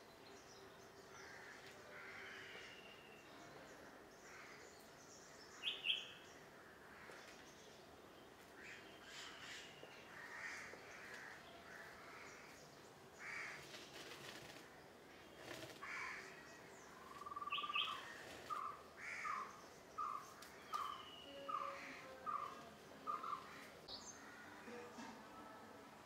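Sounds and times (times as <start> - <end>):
birds calling: 14.4 - 24.5.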